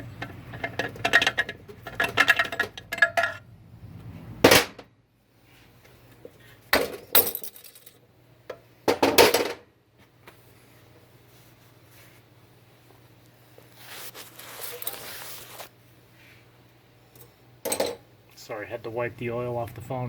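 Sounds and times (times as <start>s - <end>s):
metal parts clanking: 0.5s - 3.4s.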